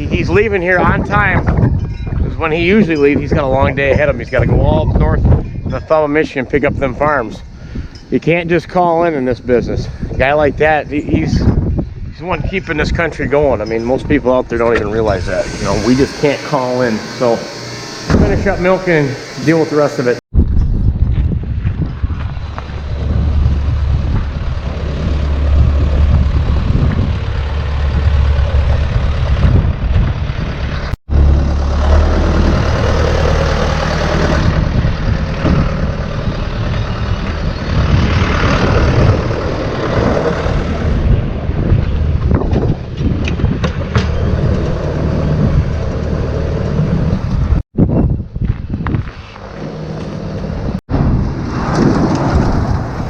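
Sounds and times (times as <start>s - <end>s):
heavy vehicle engine running: 22.2s - 41.5s, 43.9s - 47.6s.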